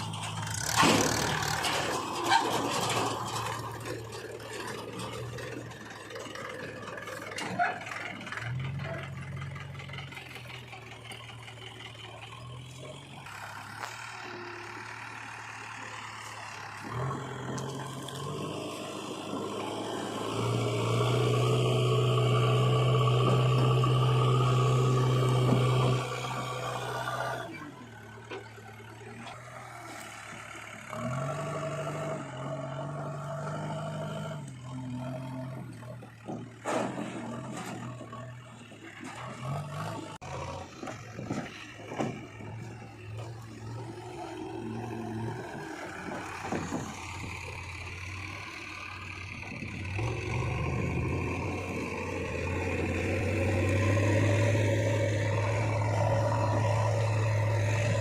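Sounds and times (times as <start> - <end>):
knocks and clatter: 0.0 - 11.7, 35.5 - 44.2, 45.4 - 47.6
diesel engines running: 0.0 - 58.0.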